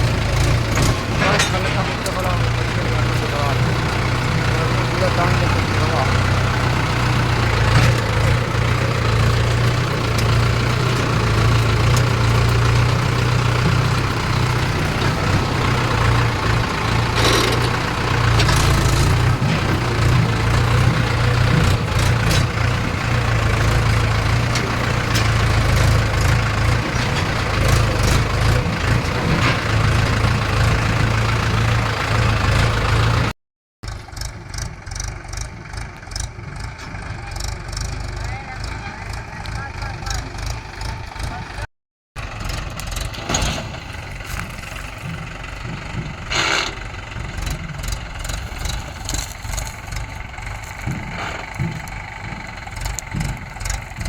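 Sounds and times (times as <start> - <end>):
diesel tractor engine running: 0.0 - 54.0
quieter engine running: 0.0 - 54.0
clattering rattles: 0.4 - 3.3.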